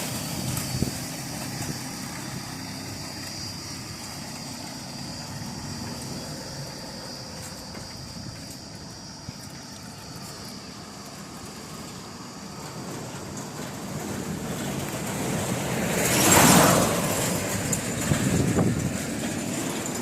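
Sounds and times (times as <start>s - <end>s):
motor vehicle passing: 10.2s - 20.0s.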